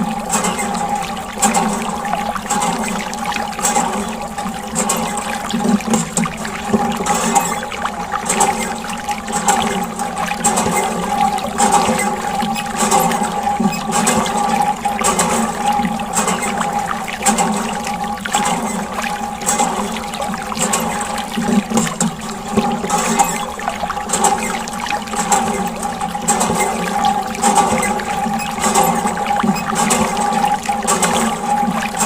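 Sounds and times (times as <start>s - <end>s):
water running and splashing: 0.0s - 32.0s.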